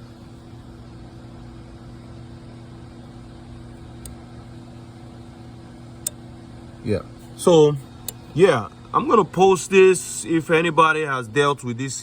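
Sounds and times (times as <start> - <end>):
steady hum: 0.0 - 12.0
faint relay click: 6.0 - 6.2, 8.0 - 8.2.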